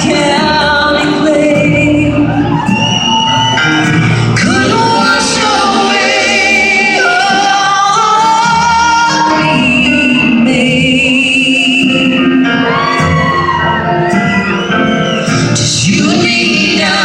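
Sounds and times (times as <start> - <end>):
live country band music: 0.0 - 17.0.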